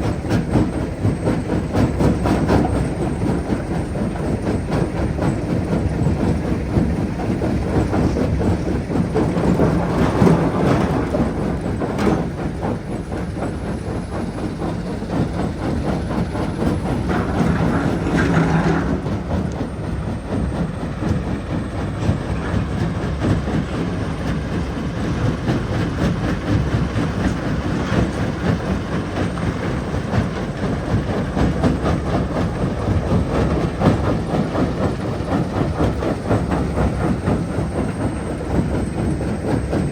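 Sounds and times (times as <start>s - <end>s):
jaw crusher rumbling: 7.3s - 12.7s, 16.5s - 20.2s.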